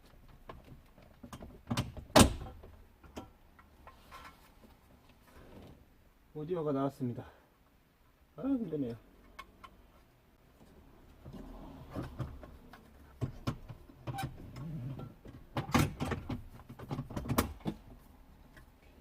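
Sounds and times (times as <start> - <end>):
clicks and knocks of hard parts: 0.0 - 4.4, 11.9 - 18.7.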